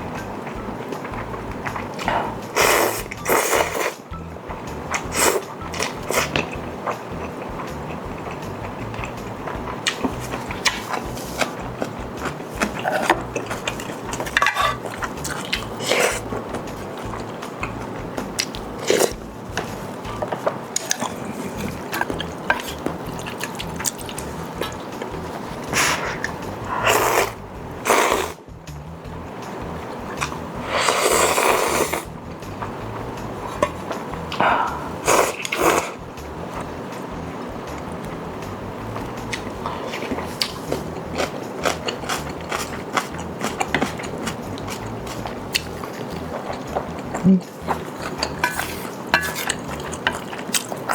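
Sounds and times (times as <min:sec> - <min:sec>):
utensils clinking: 0:00.4 - 0:04.1, 0:04.9 - 0:28.4, 0:33.3 - 0:36.0, 0:38.9 - 0:50.9
slurping: 0:01.0 - 0:04.1, 0:04.9 - 0:28.4, 0:30.0 - 0:50.9
ramen noodles being slurped: 0:02.6 - 0:04.0, 0:09.9 - 0:16.3, 0:18.7 - 0:19.2, 0:25.4 - 0:28.4, 0:30.2 - 0:32.1, 0:34.4 - 0:36.0, 0:39.6 - 0:46.7
chewing with wet mouth clicks: 0:04.9 - 0:28.3, 0:38.8 - 0:50.9.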